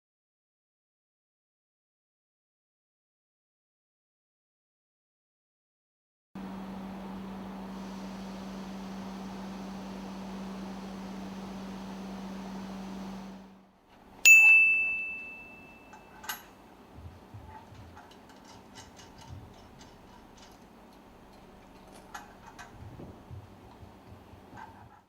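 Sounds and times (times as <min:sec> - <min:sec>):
steady hum: 0:06.4 - 0:24.8
sharp metallic ding: 0:14.3 - 0:16.6.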